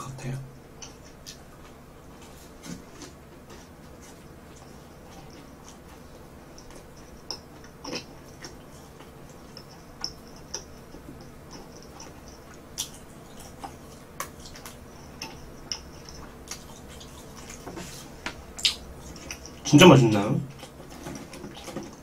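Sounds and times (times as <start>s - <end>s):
chewing crispy bread: 0.7s - 22.0s
wet mouth clicks: 18.6s - 19.7s.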